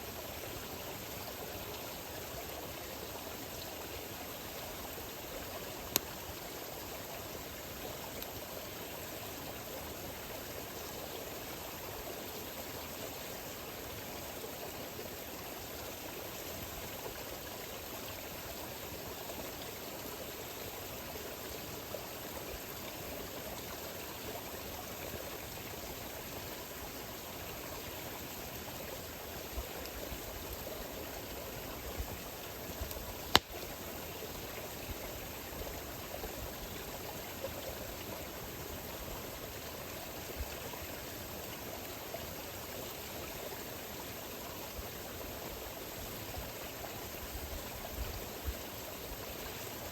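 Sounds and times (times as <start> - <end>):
campfire hissing: 3.3 - 10.3, 24.6 - 41.8
small fire crackles: 5.0 - 8.6, 27.6 - 35.2
fire popping: 32.9 - 33.6.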